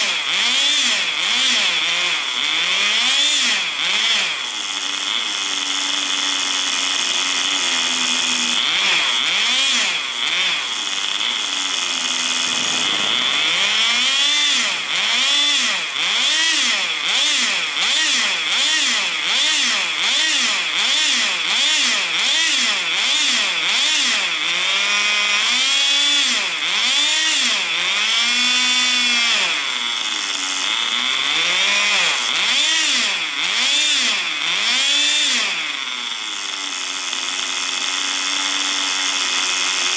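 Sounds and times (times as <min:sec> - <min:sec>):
model car engine revving: 0:00.0 - 0:39.9.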